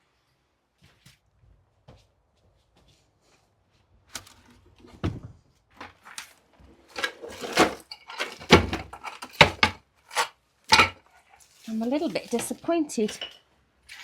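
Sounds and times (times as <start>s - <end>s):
knocks bumps and scrapes of clutter: 4.4s - 11.1s.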